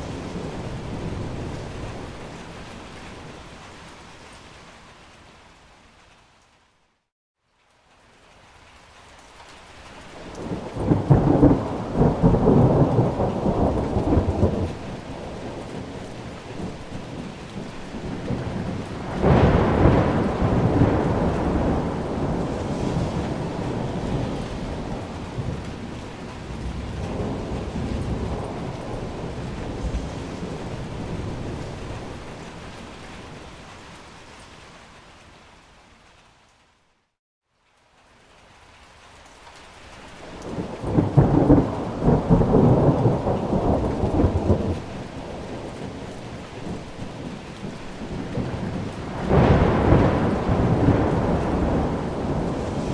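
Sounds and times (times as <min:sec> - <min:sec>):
steady rain: 0:00.0 - 0:52.9
rolling thunder: 0:10.2 - 0:33.4, 0:40.4 - 0:52.9.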